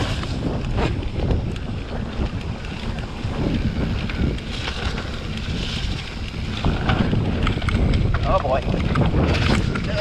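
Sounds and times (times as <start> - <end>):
mountain bike rumbling and rattling: 0.0 - 10.0
wind buffeting microphone: 0.0 - 10.0.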